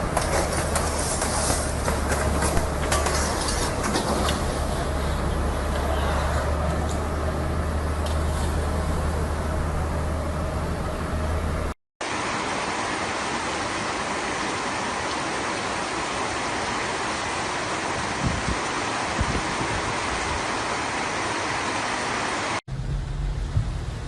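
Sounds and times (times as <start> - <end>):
rushing flood water: 12.0 - 22.6.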